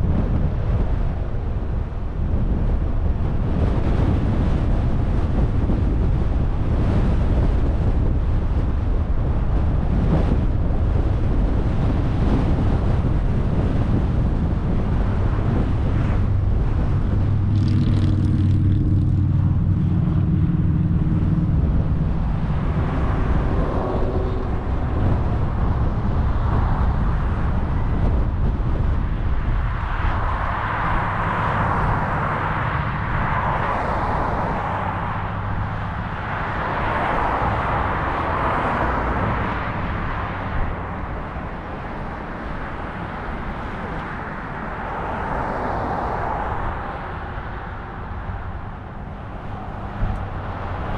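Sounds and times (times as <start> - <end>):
car engine hum: 0.0 - 50.9
tyre and road noise: 0.0 - 50.9.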